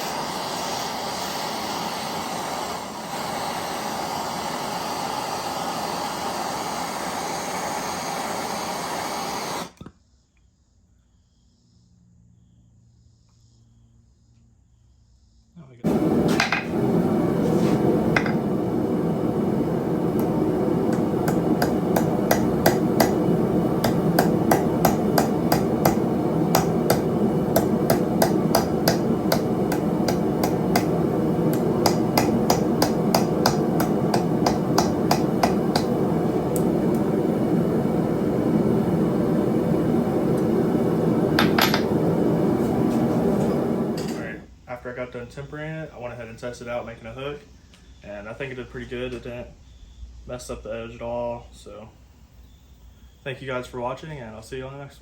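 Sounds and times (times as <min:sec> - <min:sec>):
hammer striking steel on anvil: 0:21.2 - 0:36.0.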